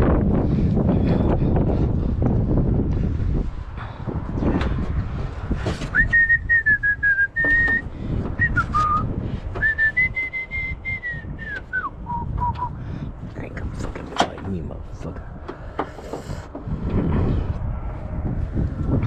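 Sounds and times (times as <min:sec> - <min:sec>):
person whistling slow tune: 0:06.0 - 0:07.8, 0:08.4 - 0:12.8.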